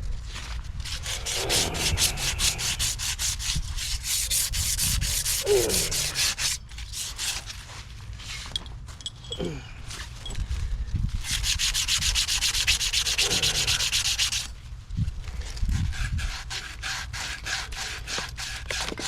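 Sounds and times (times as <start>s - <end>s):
abrasive rubbing strokes: 0.8s - 7.5s, 11.2s - 14.5s.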